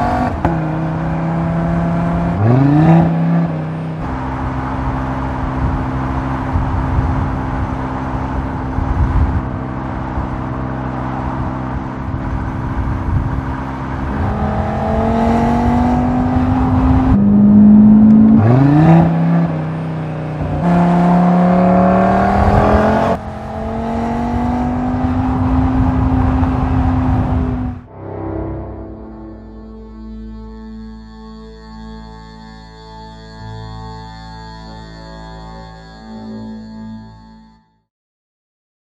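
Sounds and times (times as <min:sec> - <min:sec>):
car engine accelerating: 0:00.0 - 0:31.2.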